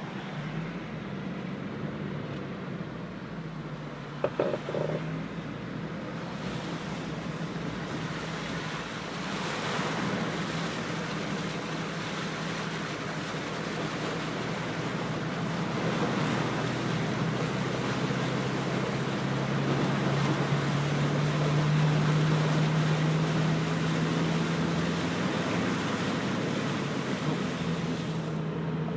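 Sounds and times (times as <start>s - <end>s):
vehicle engine running: 0.0s - 6.0s
floodwater rushing: 6.2s - 28.8s.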